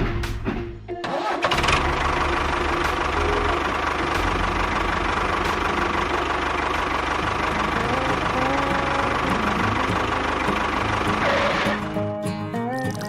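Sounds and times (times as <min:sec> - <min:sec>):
music with percussive beat: 0:00.0 - 0:00.9
engine starting and running: 0:00.0 - 0:12.2.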